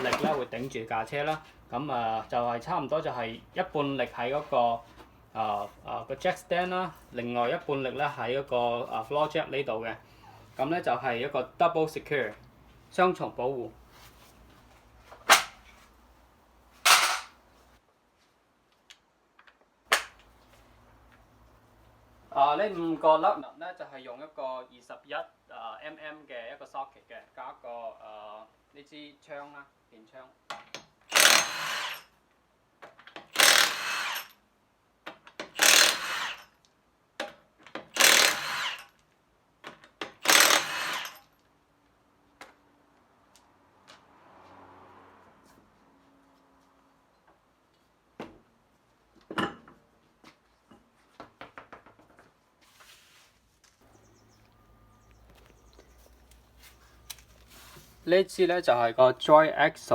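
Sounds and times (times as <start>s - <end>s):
impact wrench bursts: 31.1s - 32.1s, 33.3s - 34.4s, 35.6s - 36.5s, 37.9s - 39.0s, 40.2s - 41.3s.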